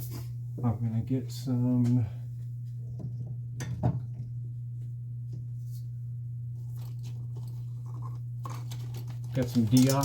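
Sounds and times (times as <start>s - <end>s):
steady low hum: 0.0s - 10.0s
small tools clicking and knocking: 8.5s - 10.0s.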